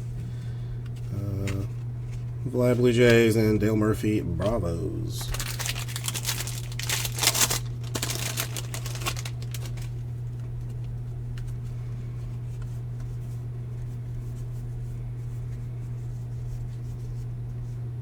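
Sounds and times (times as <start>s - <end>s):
steady low hum: 0.0s - 18.0s
cards being handled: 0.2s - 13.2s
wrapper crinkling: 5.2s - 10.7s.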